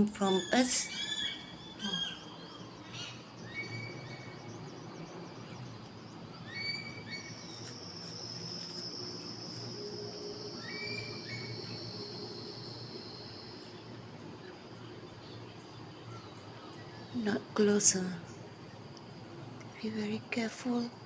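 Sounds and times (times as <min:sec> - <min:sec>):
high-pitched insect drone: 0:00.0 - 0:21.0
bird calls: 0:00.2 - 0:08.8.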